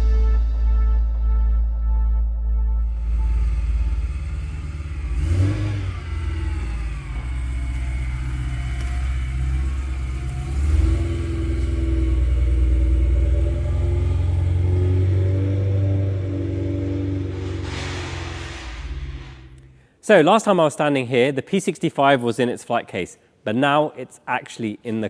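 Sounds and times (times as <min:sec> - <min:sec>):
car engine idling: 0:02.9 - 0:19.8
engine throttle blips: 0:02.9 - 0:19.9.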